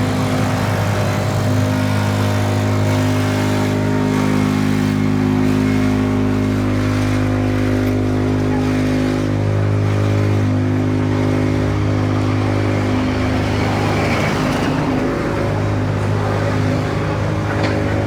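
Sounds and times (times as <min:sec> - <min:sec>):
traffic noise: 0:00.0 - 0:18.0
vehicle engine running: 0:00.0 - 0:18.0.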